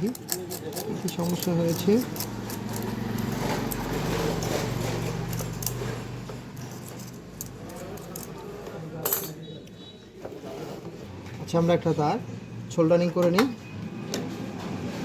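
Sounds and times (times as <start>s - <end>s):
fan parts clicking and rattling: 0.0s - 9.4s.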